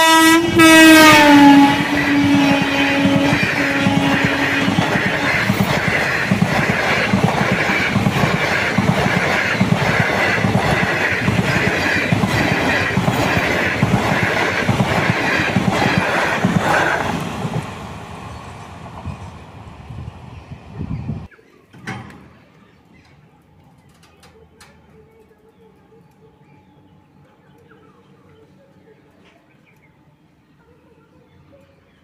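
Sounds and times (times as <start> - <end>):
train horn blast: 0.0 - 5.6
train wheels rushing on rail: 0.0 - 21.3.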